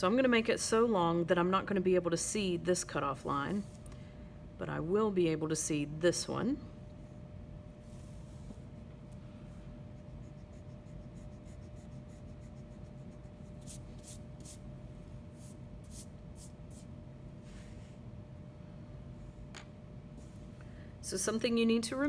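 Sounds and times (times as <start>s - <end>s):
faint steady hum: 0.0s - 22.0s
pencil scratching on paper: 9.9s - 14.6s.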